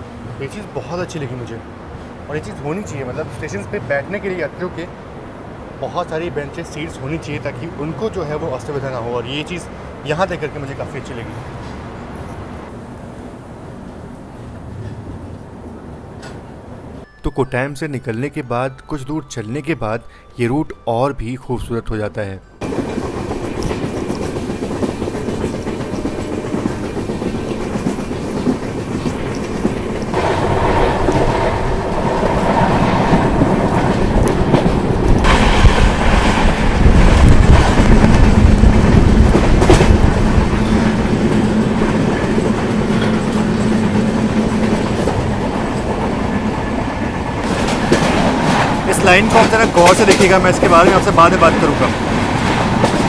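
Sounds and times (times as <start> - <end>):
train wheels rumbling on rails: 22.6 - 53.0.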